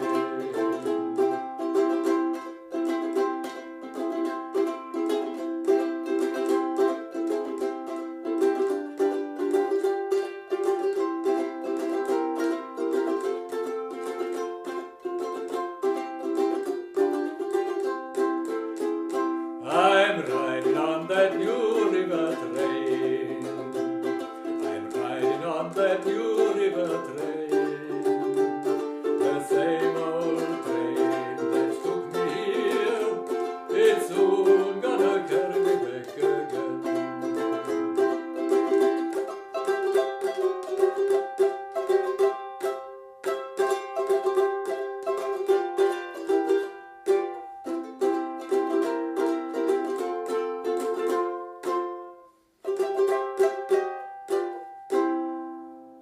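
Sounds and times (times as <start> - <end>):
ukulele strumming: 0.0 - 56.0.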